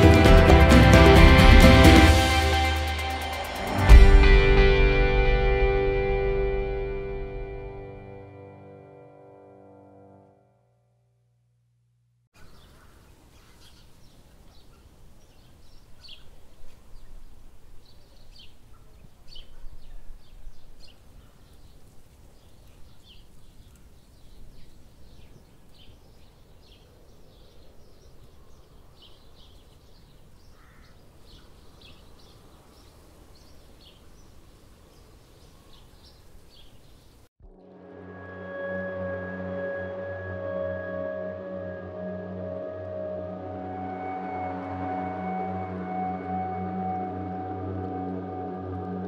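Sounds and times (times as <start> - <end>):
small birds chirping: 12.4 - 37.3.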